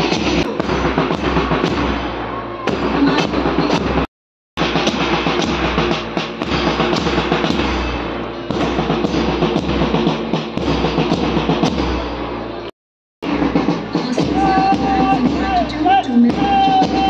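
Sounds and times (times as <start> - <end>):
music with steady drum beat: 0.0 - 17.0
bass drum beat: 2.7 - 12.0, 13.2 - 17.0.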